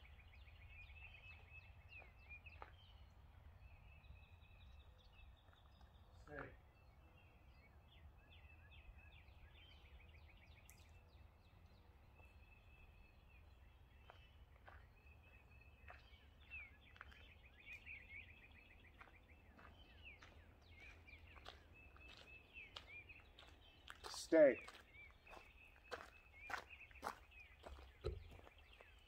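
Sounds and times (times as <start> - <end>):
songbirds chirping and trilling: 0.0 - 29.0.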